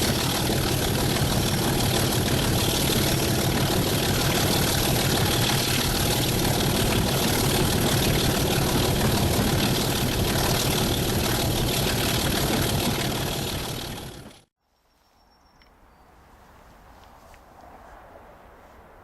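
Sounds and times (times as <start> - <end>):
diesel locomotive engine running: 0.0 - 14.5.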